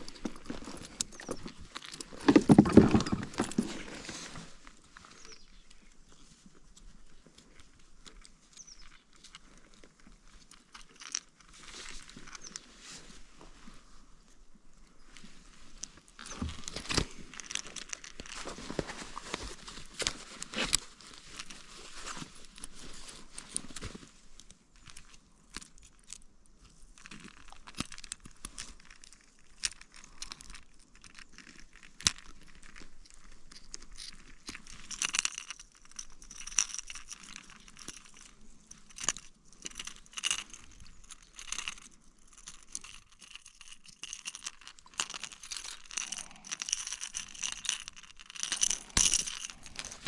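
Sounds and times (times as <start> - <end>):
gear handling clicks and knocks: 0.0 - 4.6, 27.0 - 50.0
rustling and crinkling: 0.0 - 50.0.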